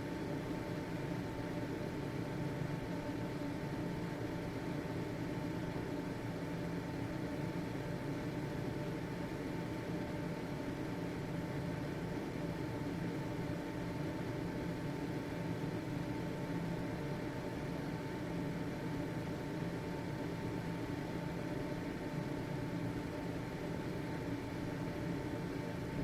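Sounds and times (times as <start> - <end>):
faint constant whine: 0.0 - 26.0
ventilation fan whirring: 0.0 - 26.0.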